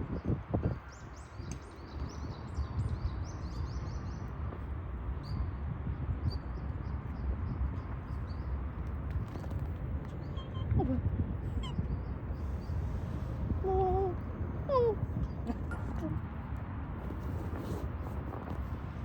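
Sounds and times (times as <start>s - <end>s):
small birds chirping: 0.2s - 4.4s, 6.3s - 16.2s
low outdoor rumble: 3.9s - 19.0s.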